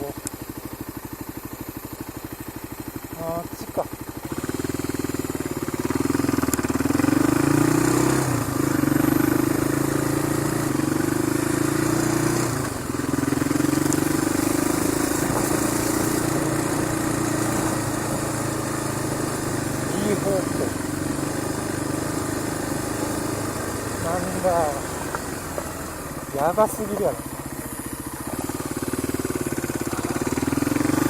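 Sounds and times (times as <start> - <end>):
motorcycle engine accelerating: 0.0 - 31.0
wind and road noise: 5.8 - 29.6.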